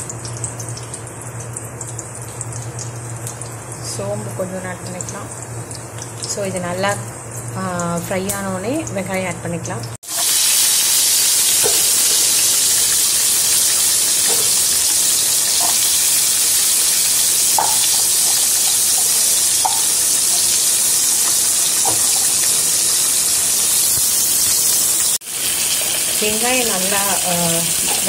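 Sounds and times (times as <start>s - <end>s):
shallots sizzling in hot oil: 10.0s - 28.0s.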